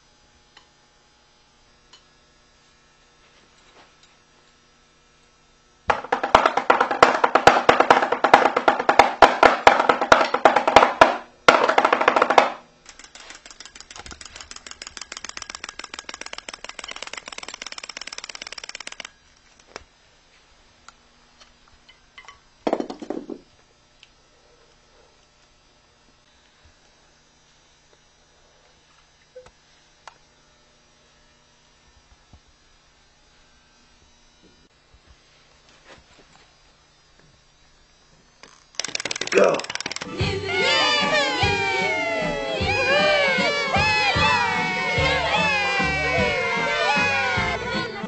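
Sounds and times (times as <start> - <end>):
rapid drum rolls: 5.9 - 12.6.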